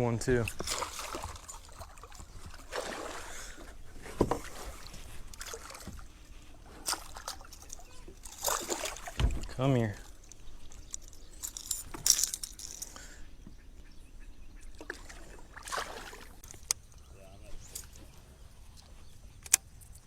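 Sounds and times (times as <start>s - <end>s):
water splashing: 0.3s - 10.7s, 14.8s - 16.6s.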